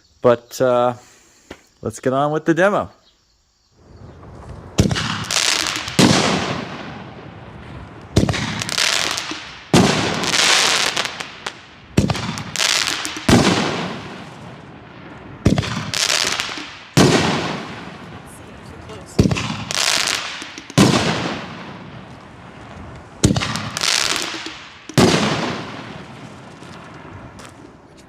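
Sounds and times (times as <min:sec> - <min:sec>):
firework crackling hiss: 0:03.8 - 0:28.0
firework shells banging: 0:04.8 - 0:07.2, 0:08.0 - 0:28.0.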